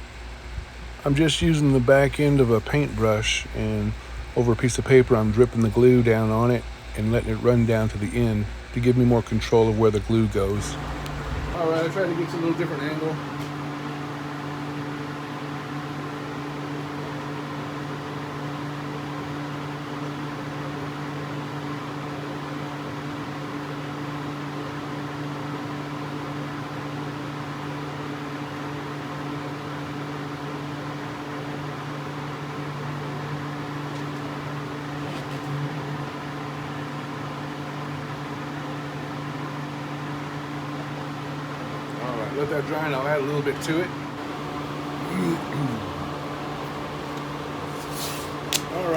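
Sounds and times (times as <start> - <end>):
fan humming: 0.0 - 48.9
even hiss: 47.7 - 48.9.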